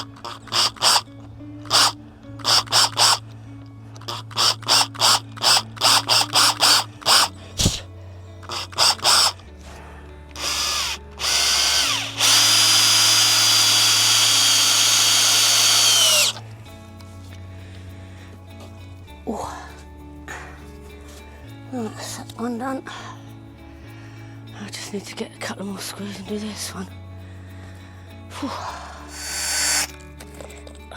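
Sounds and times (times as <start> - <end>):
power drill driving screws: 0.0 - 1.0, 1.7 - 3.2, 4.0 - 7.8, 8.5 - 9.4, 10.4 - 16.4, 29.1 - 30.0.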